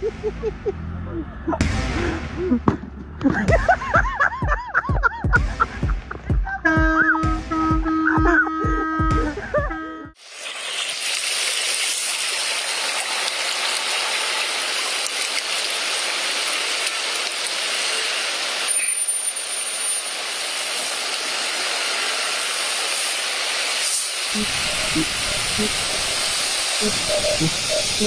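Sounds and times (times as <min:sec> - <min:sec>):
rushing water hiss: 0:10.2 - 0:28.0.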